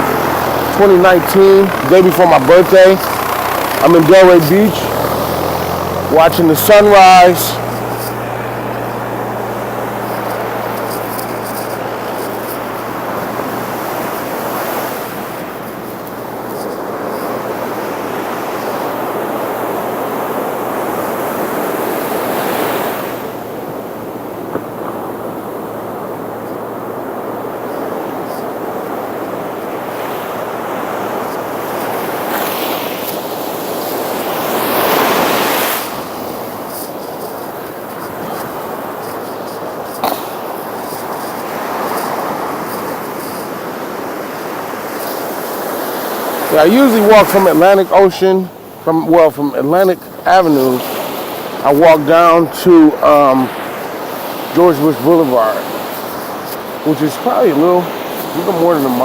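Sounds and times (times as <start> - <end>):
low hum: 0.0 - 20.6
surf breaking on beach: 0.0 - 59.0.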